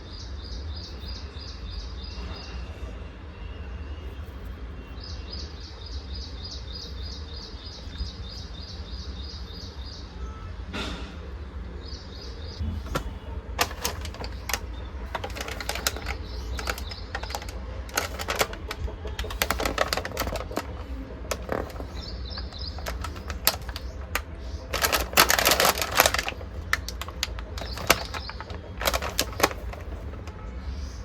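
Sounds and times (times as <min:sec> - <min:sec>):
crisp snack crackling: 0:12.7 - 0:30.4
plastic snack wrapper crinkling: 0:12.8 - 0:30.4.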